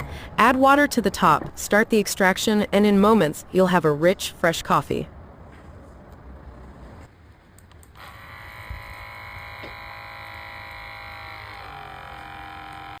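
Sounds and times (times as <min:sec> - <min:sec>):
coffee machine pump buzzing: 0:08.0 - 0:13.0.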